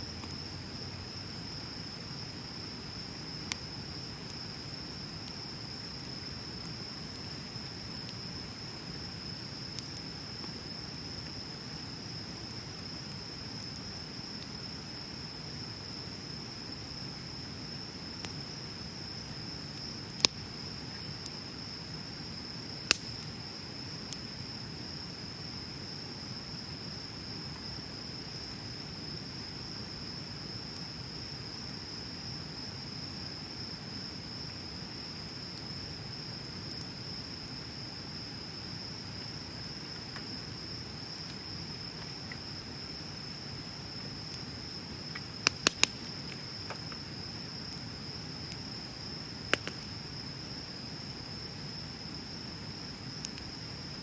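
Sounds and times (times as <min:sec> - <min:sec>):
bonfire crackling: 0:00.0 - 0:54.0
crickets trilling: 0:00.0 - 0:54.0
fire popping: 0:22.8 - 0:23.5, 0:44.3 - 0:47.8, 0:49.4 - 0:50.1.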